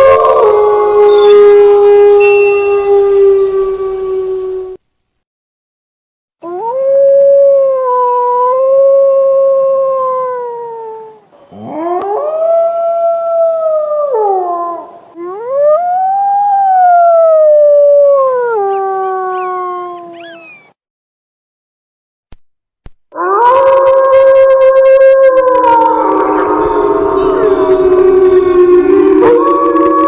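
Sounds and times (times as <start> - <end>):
wolf howling: 0.0 - 4.8, 6.4 - 20.6, 23.2 - 30.0
higher wavering voice: 25.4 - 30.0.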